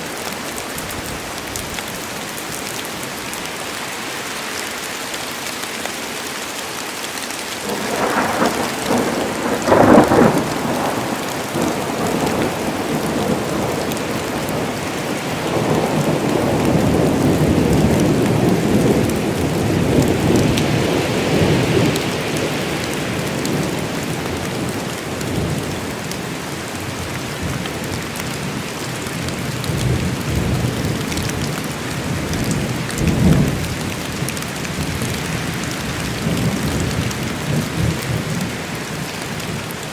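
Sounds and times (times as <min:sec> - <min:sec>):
heavy rain: 0:00.0 - 0:39.9
thunder cracking and rumbling: 0:07.6 - 0:25.8, 0:36.1 - 0:38.6.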